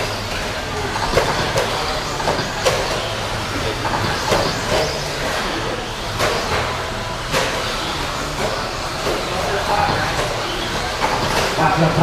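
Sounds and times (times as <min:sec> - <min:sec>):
electric rc trucks whirring: 0:00.0 - 0:11.6.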